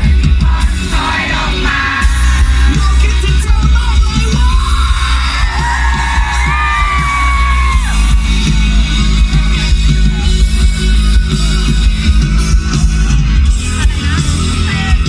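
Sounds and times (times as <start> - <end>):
live pop rock band: 0.0 - 15.0
crowd yells and whoops: 4.3 - 10.4.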